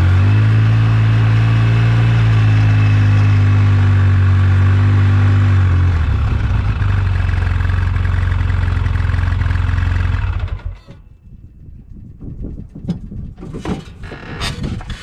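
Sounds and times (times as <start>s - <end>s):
engine running steadily: 0.0s - 15.0s
faint engine clatter: 6.2s - 15.0s.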